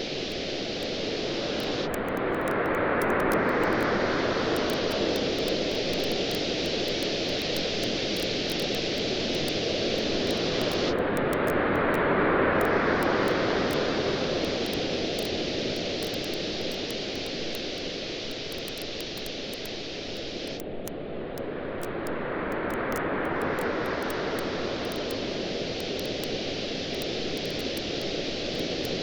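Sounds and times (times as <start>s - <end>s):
campfire crackling and popping: 4.6s - 11.5s, 14.4s - 19.8s.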